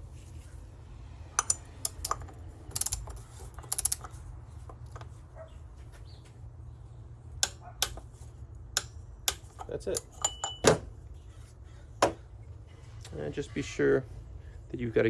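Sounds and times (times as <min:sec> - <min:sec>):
steady low hum: 0:00.0 - 0:15.0
torque wrench ratchet clicking: 0:01.4 - 0:04.2.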